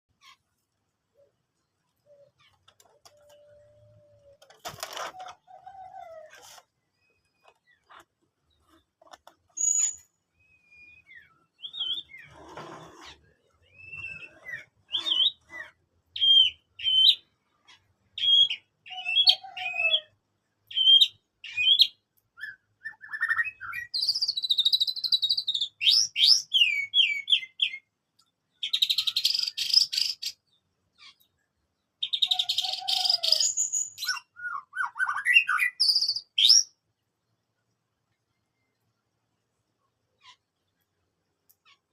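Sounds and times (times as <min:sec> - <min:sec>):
bird singing: 0:01.1 - 0:08.8, 0:09.5 - 0:37.4.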